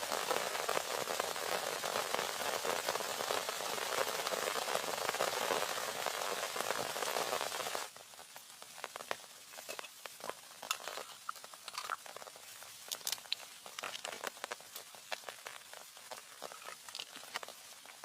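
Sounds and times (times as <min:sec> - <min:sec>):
heavy rain hissing: 0:00.0 - 0:18.0
light crackles and ticks: 0:07.6 - 0:18.0.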